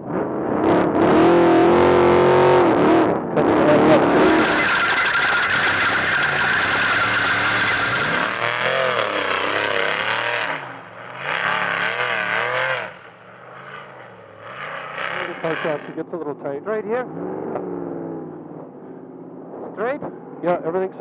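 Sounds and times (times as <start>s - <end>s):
road noise: 0.0s - 20.6s
truck engine revving: 0.7s - 16.0s.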